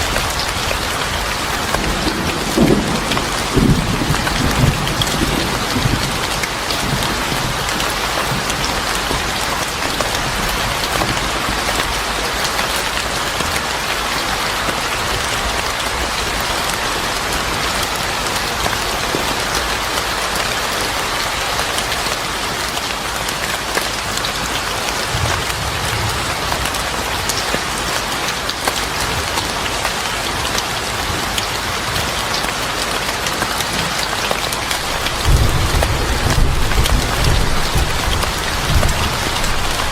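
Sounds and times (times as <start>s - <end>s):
low rolls of thunder: 0.0s - 9.4s, 25.1s - 27.2s, 34.7s - 39.9s
heavy rain falling: 0.0s - 39.9s.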